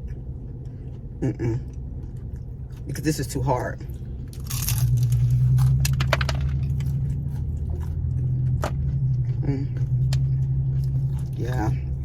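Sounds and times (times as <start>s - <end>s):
crunchy chewing: 0.0s - 12.0s
low hum: 0.0s - 12.0s
crust cracking: 4.3s - 8.9s.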